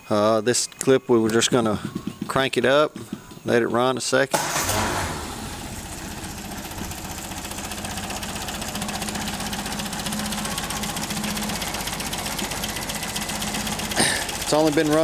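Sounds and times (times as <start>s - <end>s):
car engine idling: 4.4s - 15.0s.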